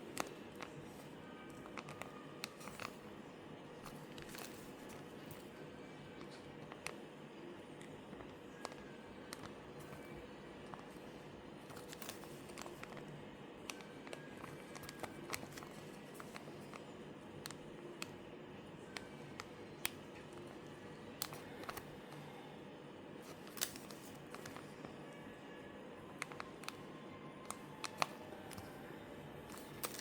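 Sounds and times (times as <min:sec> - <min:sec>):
faint steady hum: 0:00.0 - 0:30.0
small objects clicking and tapping: 0:29.5 - 0:30.0.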